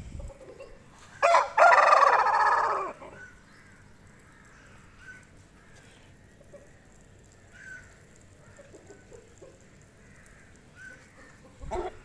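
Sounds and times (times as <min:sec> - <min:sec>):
low bird clucks: 0:10.9 - 0:12.0.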